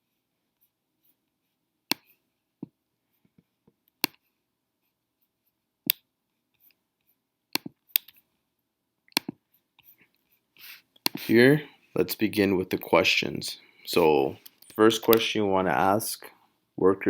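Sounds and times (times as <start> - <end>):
computer mouse clicking: 7.6 - 8.2.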